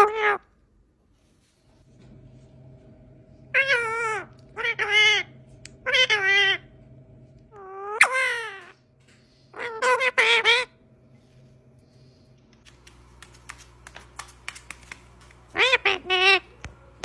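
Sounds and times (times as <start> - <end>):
parrot meowing like a cat: 0.0 - 0.5, 3.5 - 6.6, 9.6 - 10.7, 15.5 - 16.4
faint steady hum: 0.0 - 17.0.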